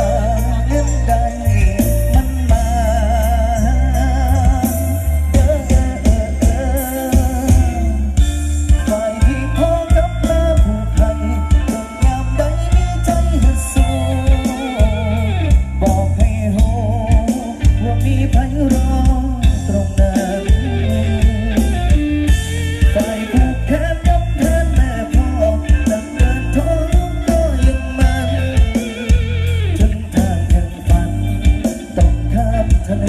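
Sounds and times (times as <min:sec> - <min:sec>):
drum kit: 0:00.0 - 0:33.0
electric guitar: 0:00.0 - 0:33.0
heavy bass: 0:00.0 - 0:33.0
wavering melody line: 0:00.0 - 0:33.0.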